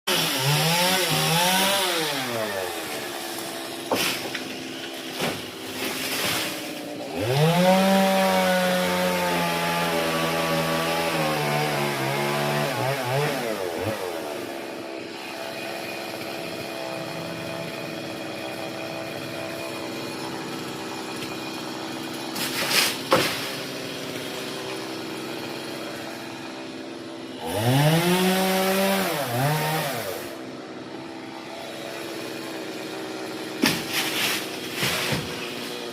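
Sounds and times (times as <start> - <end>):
chainsaw engine revving and idling: 0.0 - 35.9
sharp knocks: 33.6 - 34.1.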